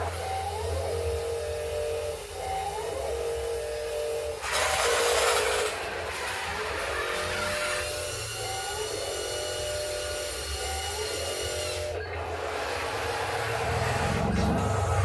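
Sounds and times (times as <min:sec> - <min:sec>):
high whine: 0:12.2 - 0:15.0
diesel engine rumble: 0:13.4 - 0:15.0.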